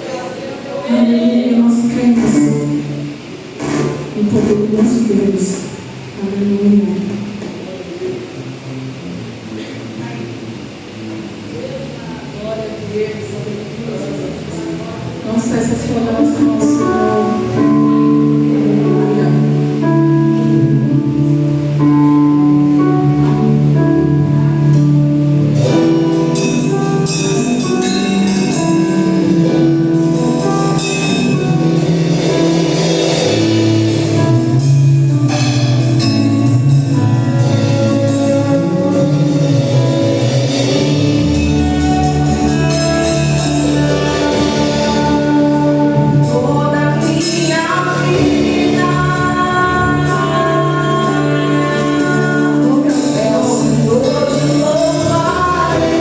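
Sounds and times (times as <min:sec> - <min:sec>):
band playing held chords: 0:00.0 - 0:56.0
drum kit with cymbals: 0:14.2 - 0:56.0.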